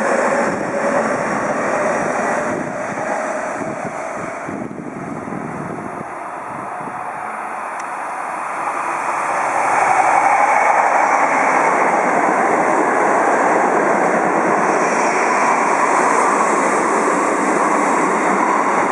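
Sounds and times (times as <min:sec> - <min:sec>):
electric train rumble: 0:00.0 - 0:18.9.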